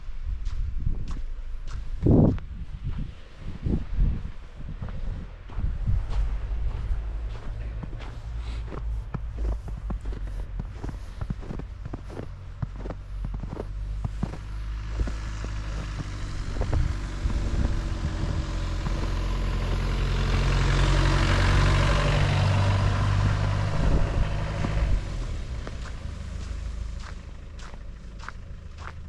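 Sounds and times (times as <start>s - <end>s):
heavy vehicle driving past: 5.1s - 29.0s.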